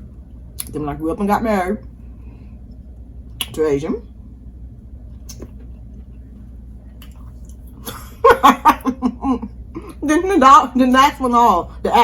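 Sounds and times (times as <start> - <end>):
woman speaking: 0.6 - 1.8, 3.5 - 4.1, 8.4 - 12.0
soft chewing of food: 5.0 - 7.8.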